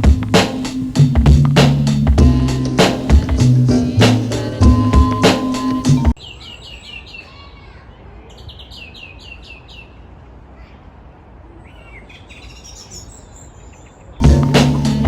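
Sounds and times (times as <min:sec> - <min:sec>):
small bird calling: 0:04.8 - 0:10.9, 0:11.5 - 0:14.2.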